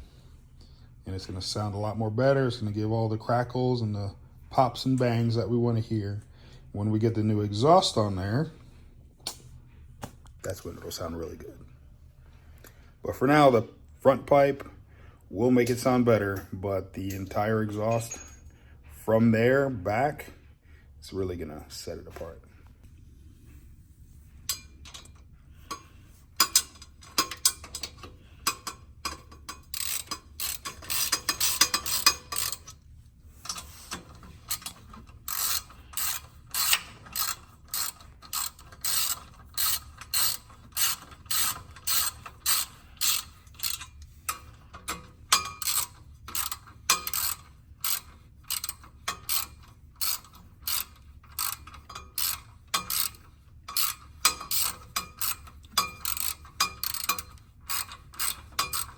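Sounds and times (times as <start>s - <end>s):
ratchet wrench clicking: 24.5s - 32.8s, 33.4s - 58.9s.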